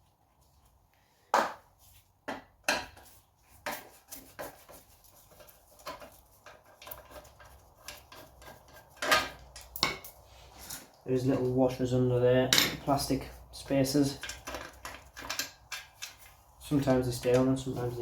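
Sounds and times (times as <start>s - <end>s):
screwdriver and screws clinking: 14.0s - 16.3s.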